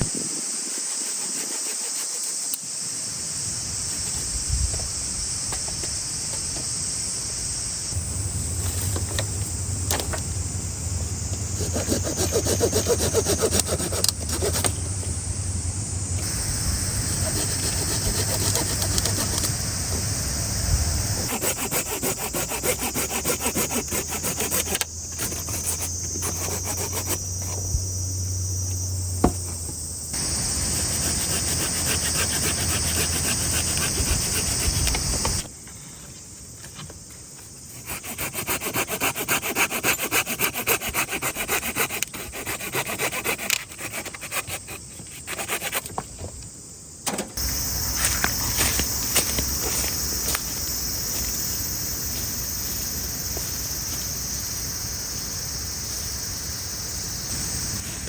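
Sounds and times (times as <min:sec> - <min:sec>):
insect chirring: 0:00.0 - 0:58.0
hand saw cutting wood: 0:00.6 - 0:02.6, 0:11.5 - 0:15.0, 0:16.2 - 0:20.0, 0:21.2 - 0:27.6, 0:30.2 - 0:35.5, 0:37.7 - 0:46.0.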